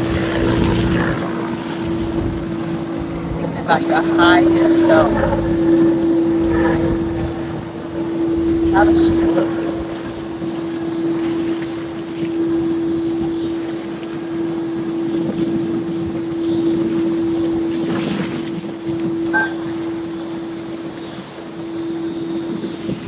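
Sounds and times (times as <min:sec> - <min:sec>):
steady low hum: 0:00.0 - 0:16.8
wind buffeting microphone: 0:00.0 - 0:23.0.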